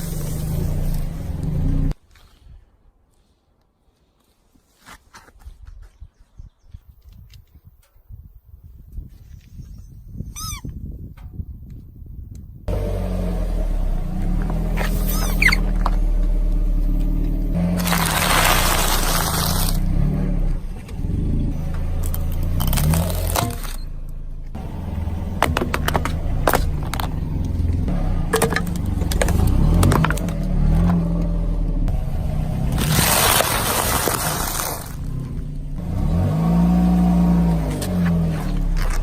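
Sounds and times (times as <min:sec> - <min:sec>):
objects being crushed: 0:17.6 - 0:19.8, 0:28.3 - 0:31.0, 0:32.7 - 0:35.1.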